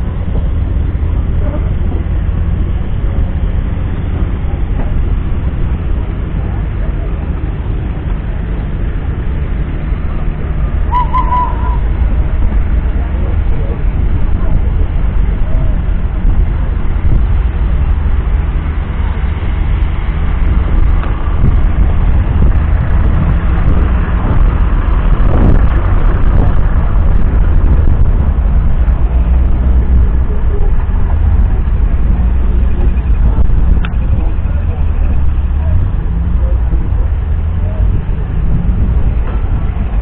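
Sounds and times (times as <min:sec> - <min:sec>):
diesel engine rumbling: 0:00.0 - 0:40.0.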